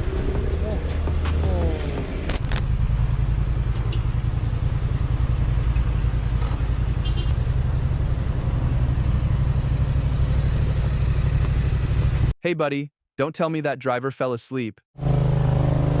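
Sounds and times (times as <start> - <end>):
vehicle rumble with road noise: 0.0 - 12.4.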